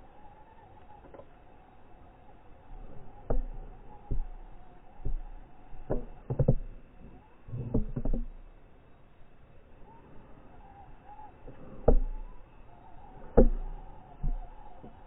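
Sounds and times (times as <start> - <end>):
faint motor whine: 0.0 - 15.0
sharp knocks and clunks: 3.2 - 6.8, 7.5 - 8.5, 11.8 - 12.3, 13.2 - 15.0.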